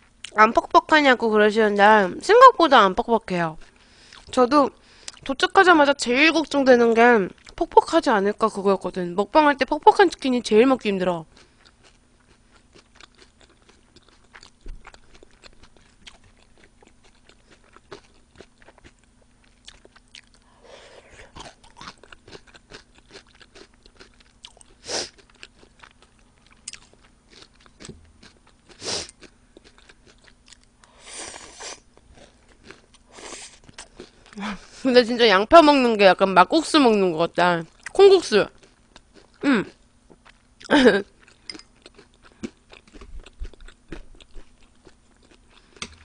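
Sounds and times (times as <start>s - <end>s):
chewing and crunching raw onion: 11.2s - 20.6s, 21.2s - 34.4s, 37.6s - 46.0s.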